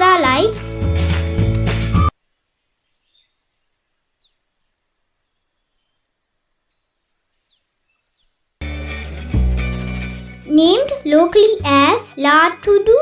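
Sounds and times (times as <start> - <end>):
high bird call: 2.7 - 6.2, 7.4 - 8.3.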